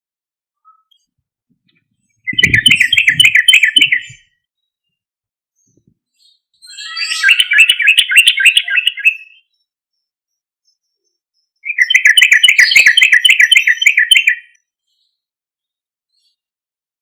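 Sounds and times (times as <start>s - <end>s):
bird singing bubbling phrases: 2.2s - 4.4s, 6.7s - 9.5s, 11.6s - 14.6s.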